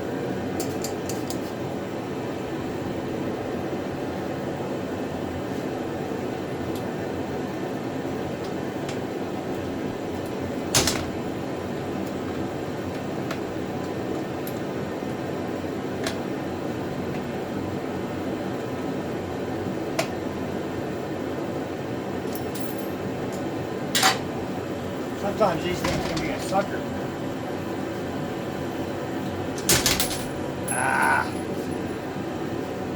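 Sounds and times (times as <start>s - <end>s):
steady background hum: 0.0s - 32.9s
metal clank: 29.6s - 30.4s.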